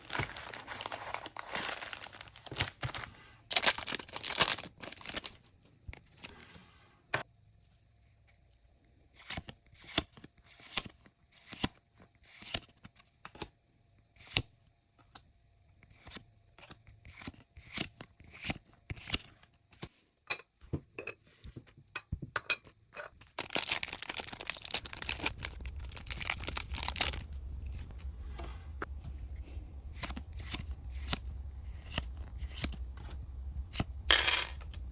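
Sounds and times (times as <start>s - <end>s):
foil wrapper crinkling: 0.0s - 5.4s, 23.4s - 27.3s.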